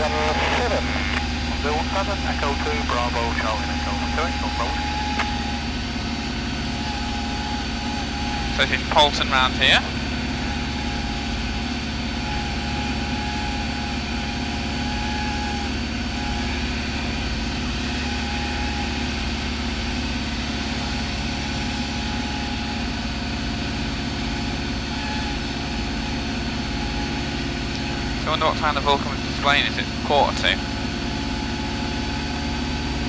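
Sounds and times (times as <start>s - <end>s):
light aircraft engine and propeller drone: 0.0s - 33.0s.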